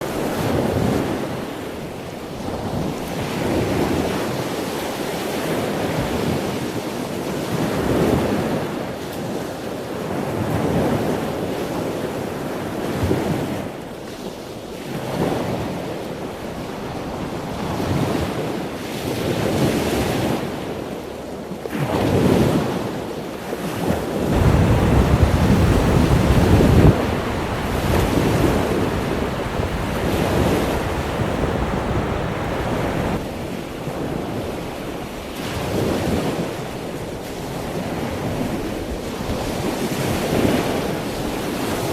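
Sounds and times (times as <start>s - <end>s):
rushing water: 24.3s - 33.2s
wind buffeting microphone: 24.3s - 33.2s.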